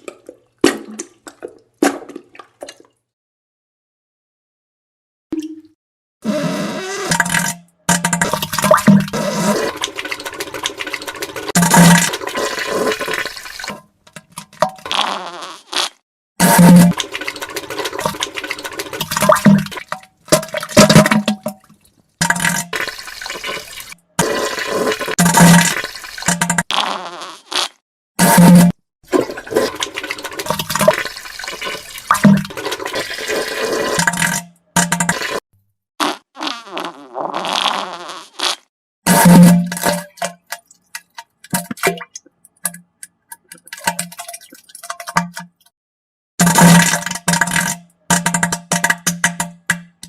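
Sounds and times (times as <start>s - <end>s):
fart sound effect: 14.8s - 17.0s, 26.4s - 28.8s, 36.0s - 39.7s
watery splattering: 16.4s - 26.9s, 29.1s - 35.4s
low buzzing fart: 36.0s - 38.6s.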